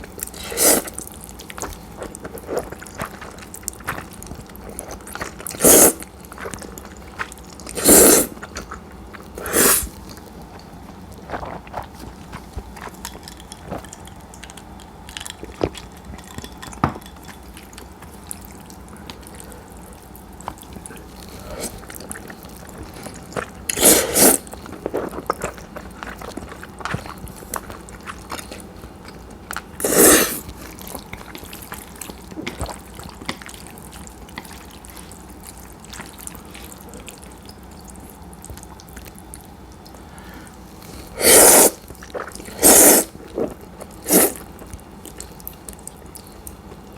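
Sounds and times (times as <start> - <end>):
quiet chewing: 0.0 - 46.9
person slurping noodles: 0.3 - 1.0, 5.4 - 6.1, 7.7 - 8.6, 9.4 - 10.0, 21.3 - 21.9, 23.1 - 24.5, 29.8 - 30.5, 41.0 - 44.4.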